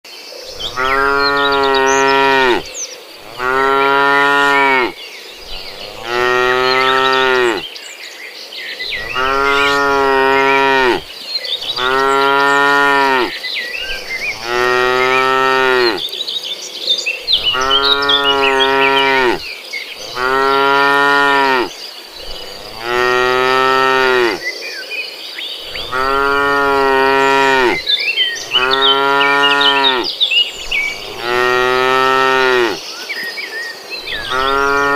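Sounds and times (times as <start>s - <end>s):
high faint chirping: 0.5s - 7.6s, 17.1s - 24.5s, 25.5s - 33.4s
cattle mooing: 0.6s - 7.6s, 8.9s - 13.3s, 14.1s - 16.0s, 17.4s - 19.4s, 20.0s - 21.7s, 22.5s - 24.4s, 25.7s - 27.8s, 28.4s - 30.1s, 30.9s - 32.8s, 34.2s - 34.9s.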